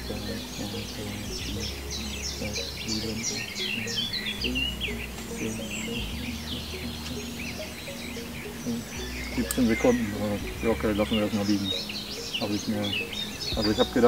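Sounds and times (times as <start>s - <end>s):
low rumble: 0.0s - 7.9s
songbirds chirping and singing: 0.0s - 14.0s.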